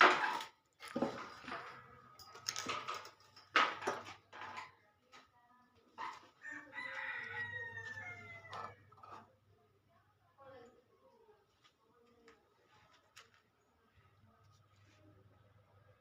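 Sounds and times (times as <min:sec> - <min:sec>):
sharp knocks and clatters: 0:00.0 - 0:04.8.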